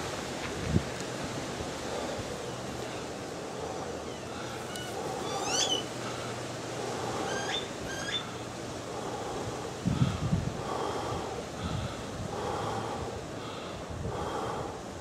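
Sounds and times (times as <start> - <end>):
wind hiss: 0.0 - 15.0
small bird chirping: 4.1 - 5.9, 7.2 - 8.3.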